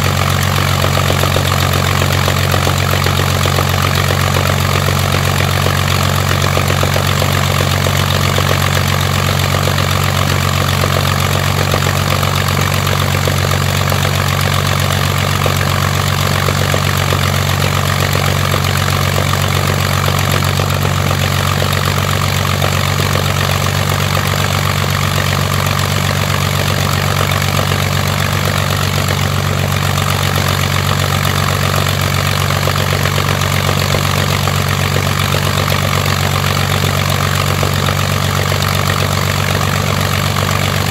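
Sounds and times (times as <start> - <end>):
aero engine running: 0.0 - 40.9.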